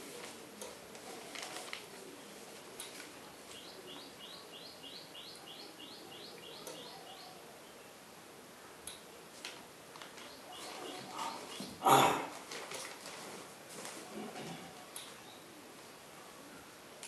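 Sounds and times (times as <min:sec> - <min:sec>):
paper rustling and clicking: 0:00.2 - 0:02.0, 0:02.7 - 0:03.6, 0:09.3 - 0:11.1, 0:12.3 - 0:15.2
bird chirping: 0:03.5 - 0:08.0, 0:10.2 - 0:11.9.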